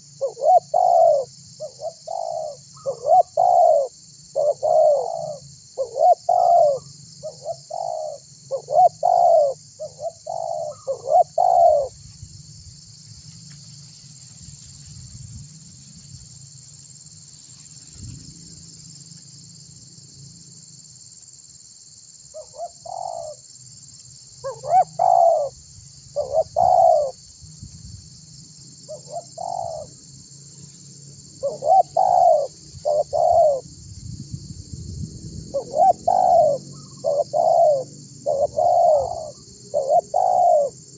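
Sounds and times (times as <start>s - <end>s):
dove cooing: 0.0s - 12.0s, 22.3s - 23.5s, 24.4s - 27.2s, 28.9s - 30.0s, 31.4s - 33.7s, 35.5s - 40.9s
steady high-pitched hiss: 0.0s - 40.9s.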